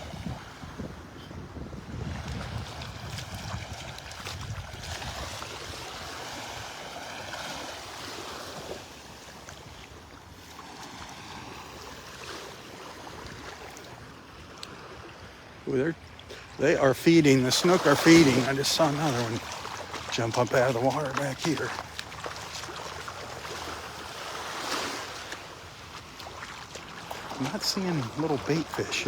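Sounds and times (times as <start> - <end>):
wind buffeting microphone: 0.0 - 6.9
small waves washing onto beach: 0.0 - 29.0.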